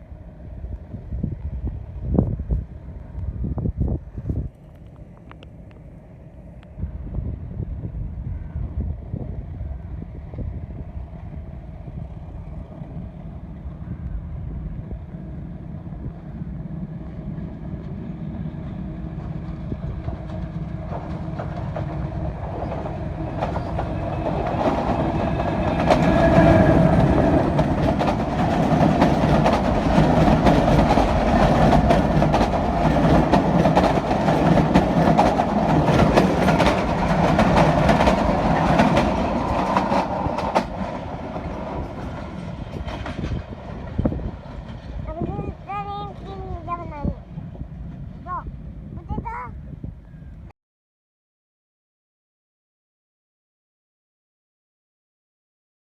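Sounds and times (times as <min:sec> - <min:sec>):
train passing: 0:00.0 - 0:49.5
wind rumble on microphone: 0:00.0 - 0:50.5
wheels clattering over rail joints: 0:20.0 - 0:45.0.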